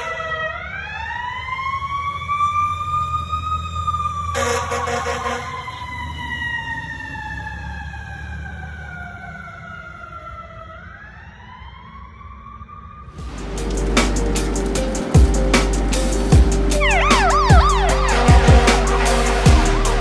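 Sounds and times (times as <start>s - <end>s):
fire engine siren: 0.0s - 13.3s, 16.2s - 20.0s
loud horn blast: 4.4s - 5.9s, 14.9s - 20.0s
truck engine rumble: 13.3s - 20.0s.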